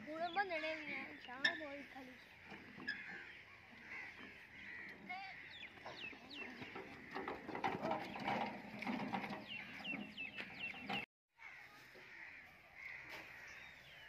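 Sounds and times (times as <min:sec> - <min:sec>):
birds chirping: 0:00.0 - 0:11.1
metal wheelbarrow rattling on dirt: 0:01.4 - 0:11.1.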